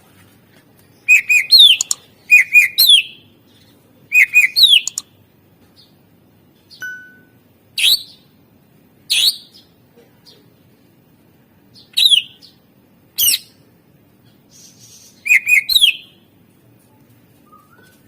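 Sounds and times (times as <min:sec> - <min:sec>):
bird singing whistled phrases: 0:01.1 - 0:03.2, 0:04.1 - 0:05.0, 0:12.0 - 0:12.4, 0:15.2 - 0:16.2, 0:17.4 - 0:18.0.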